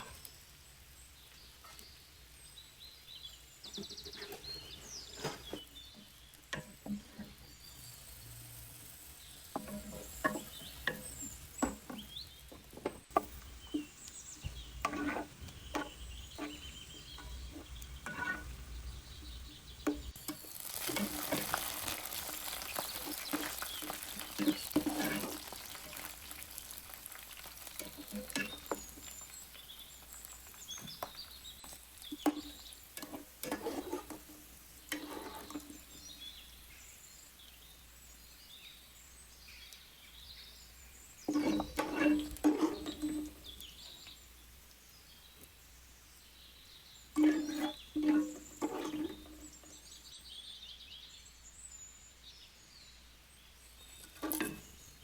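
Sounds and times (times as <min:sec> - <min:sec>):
food sizzling in a pan: 0:00.0 - 0:50.6, 0:53.2 - 0:55.0
spoon scraping metal pan: 0:03.6 - 0:36.4, 0:41.2 - 0:44.0, 0:47.1 - 0:50.0, 0:53.9 - 0:54.9.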